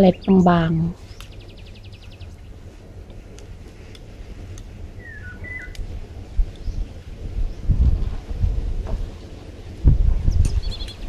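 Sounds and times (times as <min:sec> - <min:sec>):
bird whistled call: 0:05.0 - 0:05.8.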